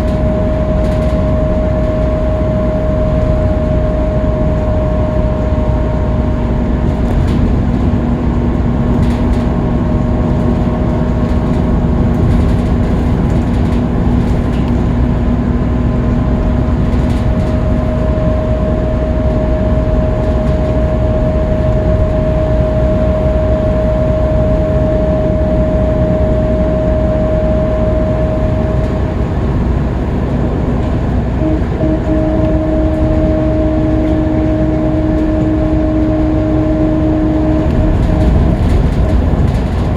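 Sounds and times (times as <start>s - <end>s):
bus engine and road noise: 0.0s - 39.9s
steady whining tones: 0.0s - 39.9s.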